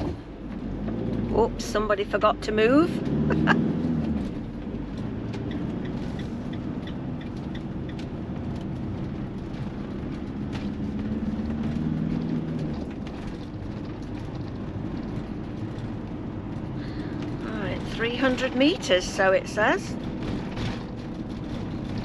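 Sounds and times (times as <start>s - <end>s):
motorhome engine hum: 0.0s - 22.0s
road noise: 0.0s - 22.0s.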